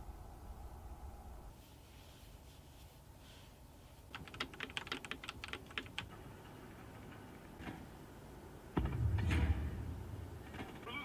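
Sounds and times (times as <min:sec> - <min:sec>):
computer keyboard keys clicking: 0:04.1 - 0:06.1.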